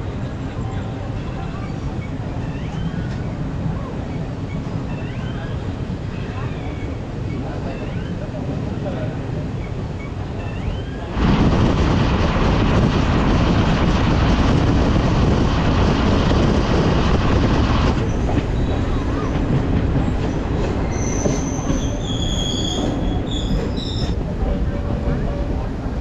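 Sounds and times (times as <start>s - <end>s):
train wheel and rail noise: 0.0s - 26.0s
high wheel squeals: 20.8s - 24.2s.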